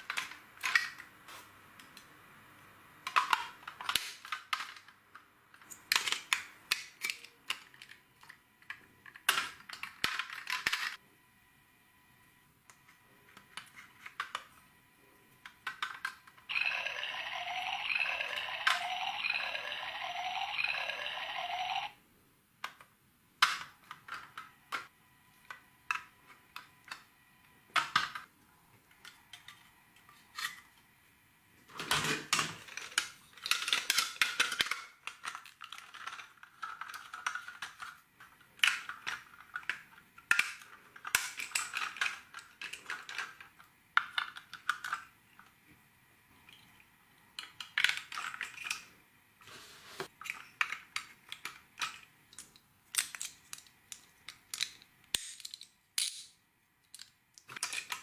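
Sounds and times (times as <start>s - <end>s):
plastic pieces clicking and clattering: 0.0s - 1.1s, 3.0s - 11.0s, 15.4s - 21.2s, 31.8s - 45.5s, 47.3s - 48.9s, 50.2s - 58.0s.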